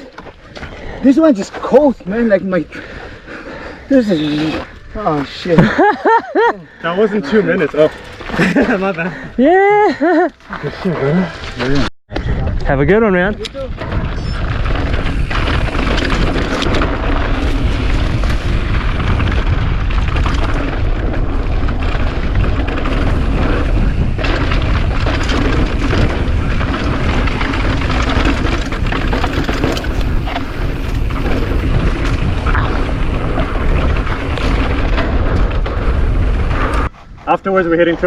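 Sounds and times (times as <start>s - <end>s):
bike tyre noise: 0.0s - 5.9s, 6.8s - 38.0s
wind rumble on microphone: 10.8s - 38.0s.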